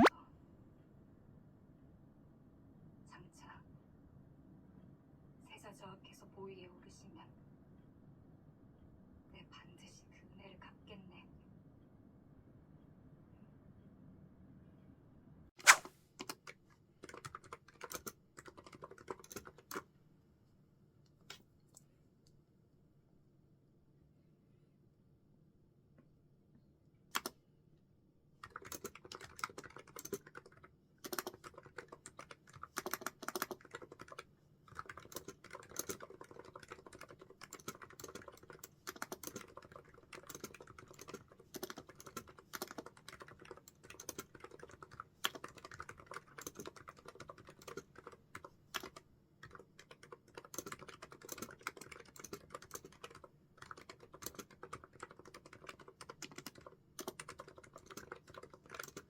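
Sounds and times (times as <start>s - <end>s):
typing on computer keyboard: 16.2s - 19.8s, 27.1s - 27.4s, 28.4s - 59.0s.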